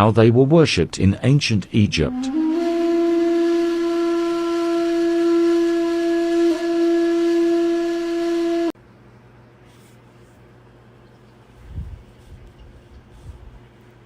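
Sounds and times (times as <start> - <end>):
long horn-like wind instrument tone: 2.0 - 8.8.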